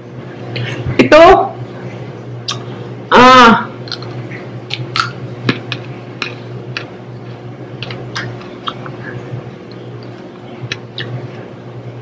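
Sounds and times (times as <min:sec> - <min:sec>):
steady low hum: 0:00.0 - 0:12.0
chewing crunches and mouth clicks: 0:03.9 - 0:05.6, 0:07.8 - 0:11.4.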